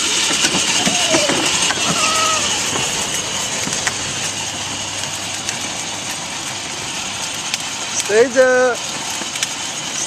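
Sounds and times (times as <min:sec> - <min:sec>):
low hum: 0:00.2 - 0:08.2
child squealing: 0:00.6 - 0:03.3.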